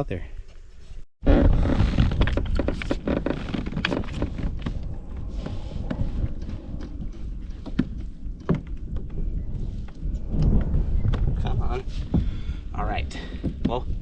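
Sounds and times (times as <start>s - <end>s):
wind rumble on microphone: 1.2s - 14.0s.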